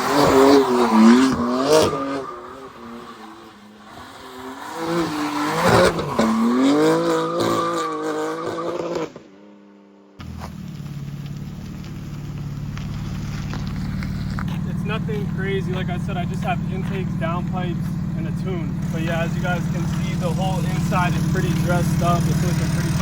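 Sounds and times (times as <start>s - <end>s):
car engine revving: 0.0s - 9.4s, 10.2s - 23.0s
engine idling rumble: 10.2s - 23.0s.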